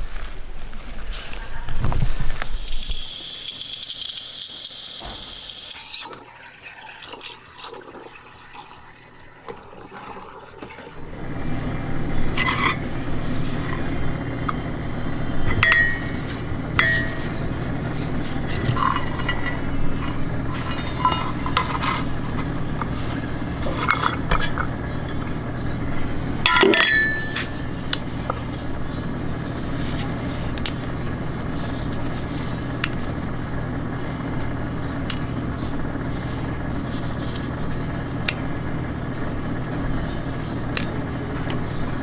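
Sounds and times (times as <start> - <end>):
steady low hum: 11.0 - 42.0
glass and dishware clinking: 15.5 - 17.5, 18.4 - 22.1, 26.5 - 27.7.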